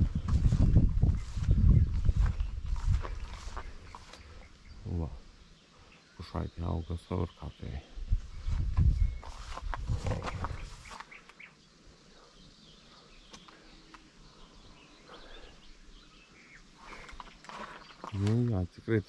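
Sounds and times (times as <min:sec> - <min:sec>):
low rumbling: 0:00.0 - 0:04.0
small birds chirping: 0:00.0 - 0:19.0.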